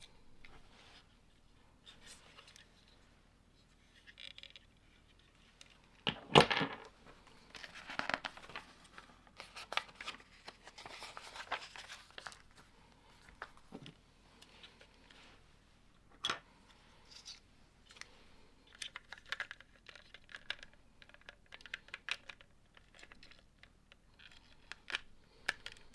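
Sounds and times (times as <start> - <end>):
lego parts rustling: 0.0 - 15.4, 16.1 - 25.9.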